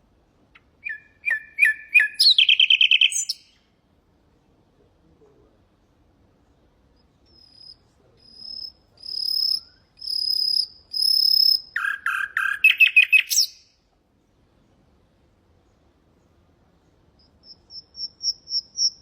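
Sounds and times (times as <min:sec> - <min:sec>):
nightingale singing: 0:00.5 - 0:03.7, 0:06.4 - 0:14.8, 0:15.6 - 0:19.0.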